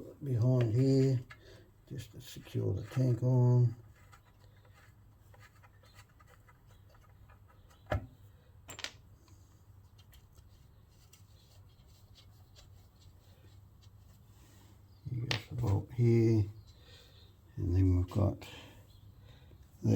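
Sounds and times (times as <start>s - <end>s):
small parts scratching and clicking: 3.8s - 7.8s.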